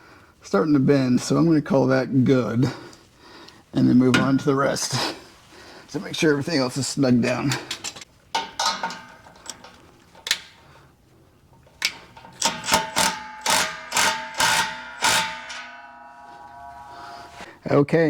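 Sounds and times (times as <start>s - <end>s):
hand ratchet clicking: 11.8s - 15.7s
ratchet strokes with metallic ring: 12.2s - 17.5s.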